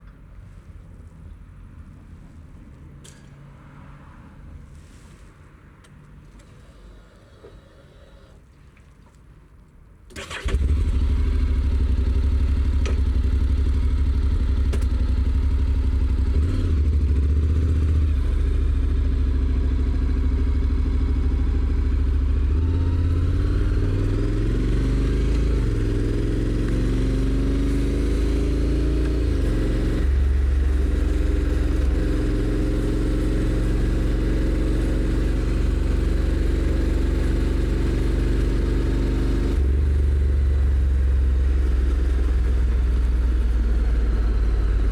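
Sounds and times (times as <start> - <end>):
motorcycle engine idling and revving: 10.2 - 44.9.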